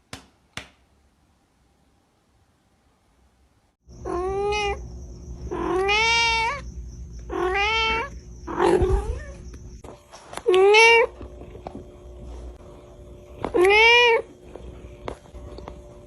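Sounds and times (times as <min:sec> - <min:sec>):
cat meowing: 0:04.0 - 0:04.8, 0:05.5 - 0:06.6, 0:07.3 - 0:09.4, 0:10.4 - 0:11.1, 0:13.5 - 0:14.3.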